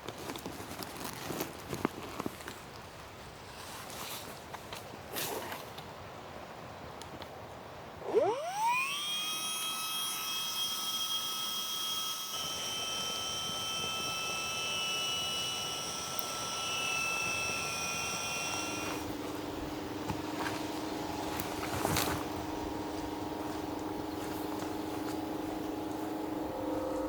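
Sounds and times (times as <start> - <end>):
electric air pump whining: 8.0 - 27.0
lower steady hum: 8.0 - 27.0.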